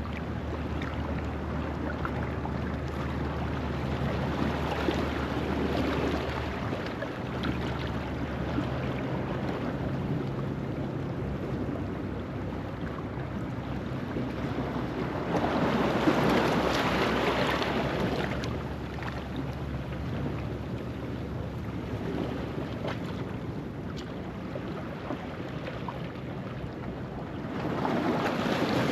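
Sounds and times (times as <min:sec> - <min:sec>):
surge of water: 0:00.0 - 0:28.9
waves washing on rocky shore: 0:14.3 - 0:20.6, 0:27.3 - 0:28.9.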